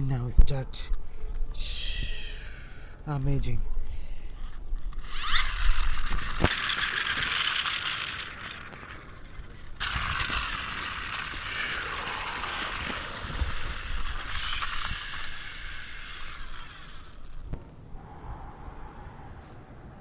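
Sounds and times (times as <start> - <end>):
toy truck motor whirring: 3.9 - 17.6.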